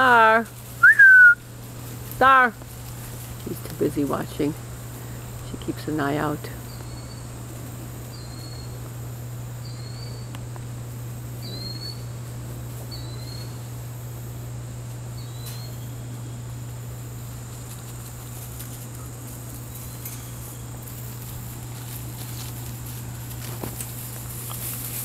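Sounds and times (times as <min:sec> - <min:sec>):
steady low hum: 0:00.0 - 0:25.0
rustling: 0:00.4 - 0:05.4, 0:17.3 - 0:25.0
small bird chirping: 0:06.7 - 0:07.3, 0:09.6 - 0:10.3, 0:11.4 - 0:12.1.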